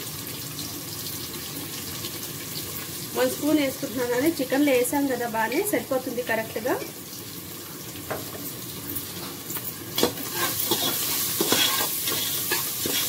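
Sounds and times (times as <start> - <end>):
onions sizzling in hot oil: 0.0 - 13.0
metal spatula scraping a pot: 10.0 - 13.0.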